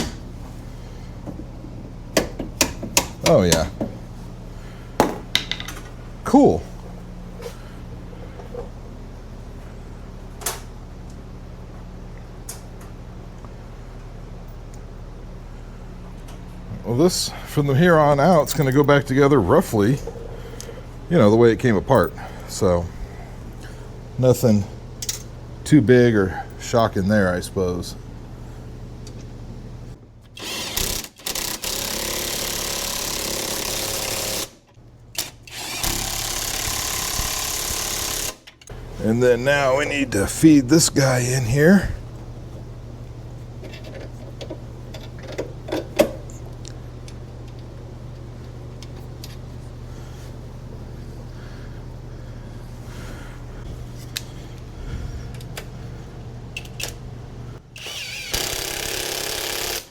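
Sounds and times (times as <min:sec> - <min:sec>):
shop hum: 0:00.0 - 0:59.9
handheld power tool running: 0:30.4 - 0:34.6, 0:35.2 - 0:38.4, 0:57.7 - 0:59.9.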